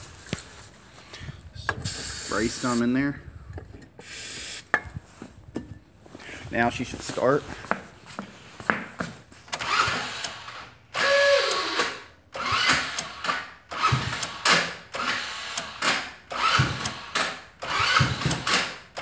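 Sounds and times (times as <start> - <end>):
electric starter cranking engine: 1.8 - 2.8, 4.0 - 4.6, 9.5 - 18.8.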